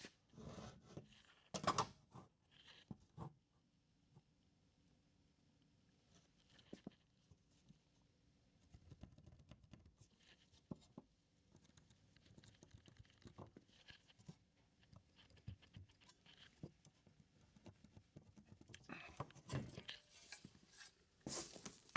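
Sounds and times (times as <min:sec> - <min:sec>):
faint clicks and taps: 0:08.6 - 0:20.5
light rustling from handling: 0:16.0 - 0:21.9.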